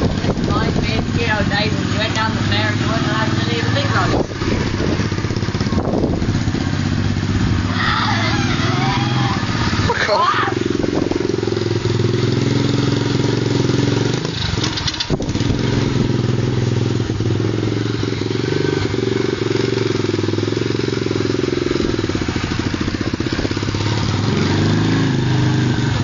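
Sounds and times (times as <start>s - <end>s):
pit bike engine running: 0.0s - 26.0s.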